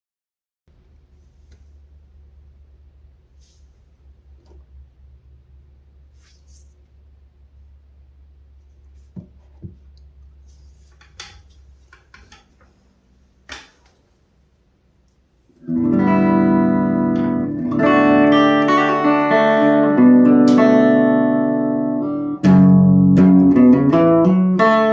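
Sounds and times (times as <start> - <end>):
amplifier hum: 0.7 - 23.7
distorted electric guitar chords: 15.6 - 24.9
guitar string and handling clicks: 20.3 - 20.9.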